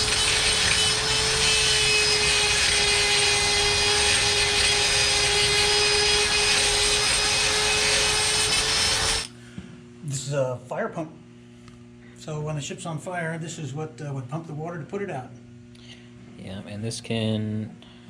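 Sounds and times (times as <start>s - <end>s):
machine hiss and whine: 0.0s - 9.3s.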